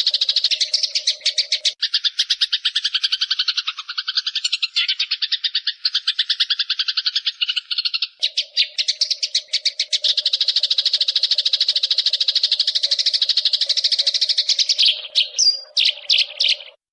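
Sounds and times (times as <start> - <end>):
sparrows chattering: 0.0 - 16.9.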